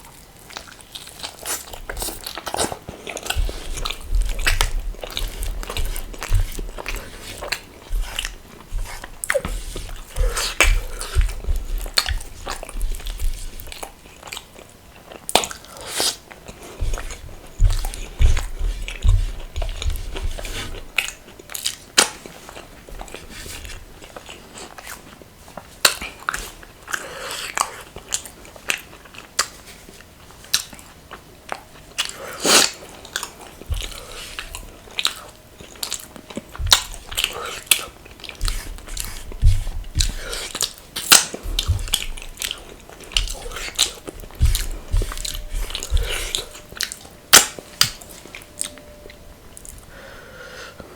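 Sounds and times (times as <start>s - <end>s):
chewing and crunching: 0.0s - 49.9s.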